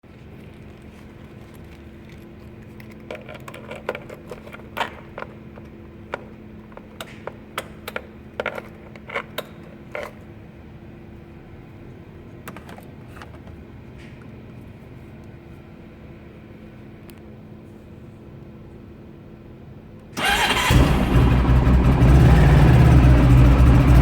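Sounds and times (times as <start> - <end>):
steady low hum: 21.0 - 24.0.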